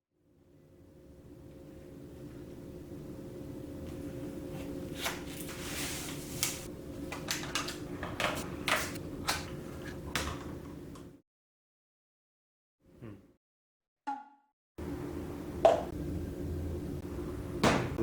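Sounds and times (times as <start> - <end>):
steady low hum: 0.5 - 11.0, 14.8 - 18.0.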